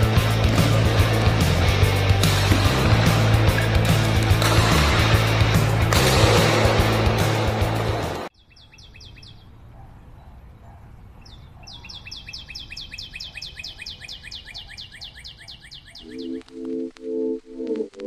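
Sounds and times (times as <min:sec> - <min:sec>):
loud music: 0:00.0 - 0:08.3
bird chirping high and fast: 0:08.3 - 0:09.6, 0:11.2 - 0:16.5.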